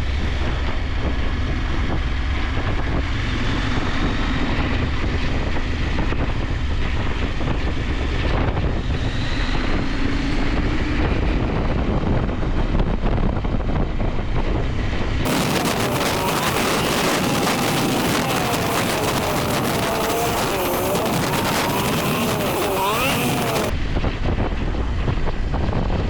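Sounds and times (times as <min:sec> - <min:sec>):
wind rush on microphone: 0:00.1 - 0:26.0
motorcycle engine running: 0:15.3 - 0:23.7.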